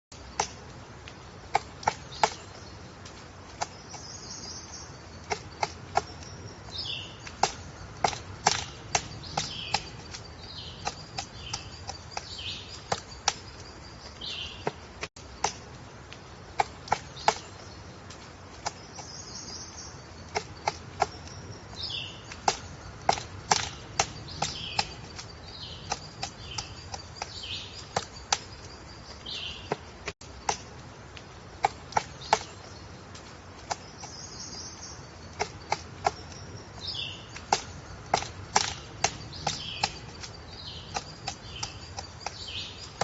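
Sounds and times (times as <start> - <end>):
woodpecker pecking at wood: 0.1 - 43.0.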